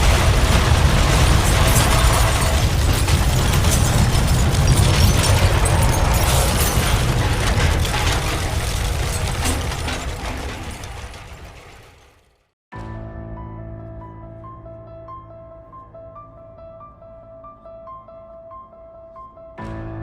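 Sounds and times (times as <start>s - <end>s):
deep earthquake rumble: 0.0s - 12.0s
objects rattling and clattering: 0.0s - 12.4s.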